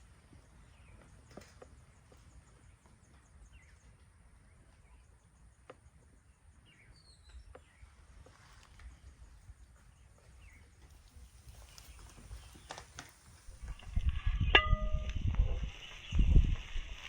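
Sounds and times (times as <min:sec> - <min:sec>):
low rumble: 0:13.6 - 0:17.0.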